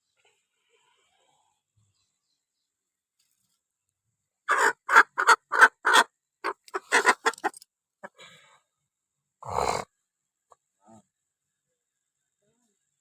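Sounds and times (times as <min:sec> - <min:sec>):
chicken clucking: 0:04.5 - 0:08.2.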